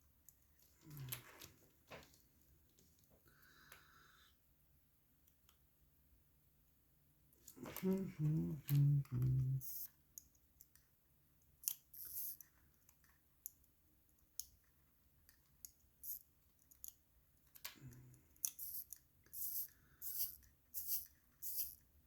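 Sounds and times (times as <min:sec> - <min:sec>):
small metallic clicks: 0:11.5 - 0:21.8
tools scraping watch parts: 0:18.4 - 0:21.8.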